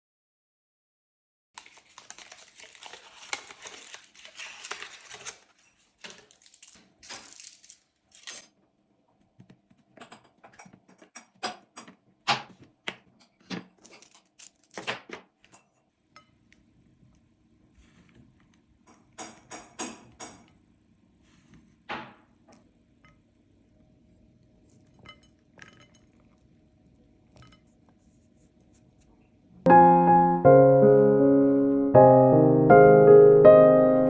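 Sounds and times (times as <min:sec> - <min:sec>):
spoon clinking on dishes: 0:24.8 - 0:26.4.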